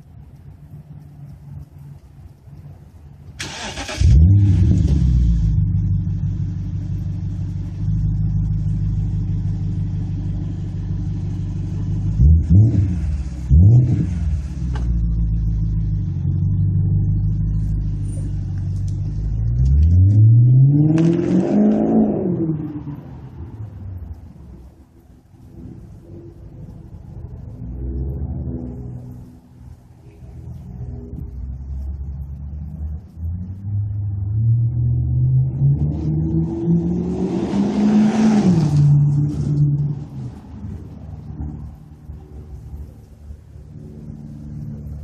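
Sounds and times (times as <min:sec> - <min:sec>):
car engine starting and idling: 0:00.0 - 0:30.3
car engine revving: 0:03.4 - 0:24.7, 0:31.0 - 0:45.0.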